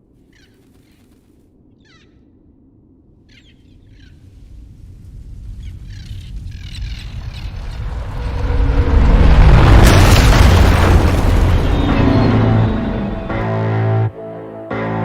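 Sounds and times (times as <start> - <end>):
deep rumble: 1.6 - 14.1
falling bird chirps: 3.2 - 4.4, 5.5 - 8.3.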